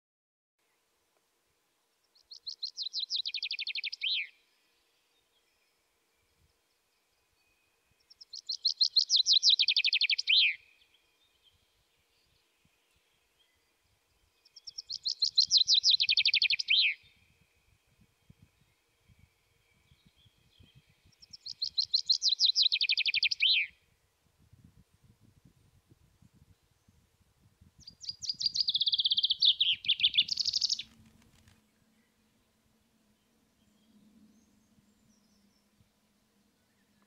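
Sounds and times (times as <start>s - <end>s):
songbird singing: 1.8s - 37.0s.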